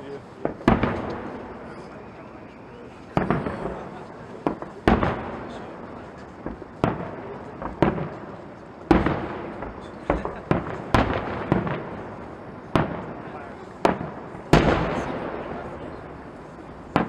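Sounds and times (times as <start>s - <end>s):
fireworks shells bursting: 0.4s - 17.0s.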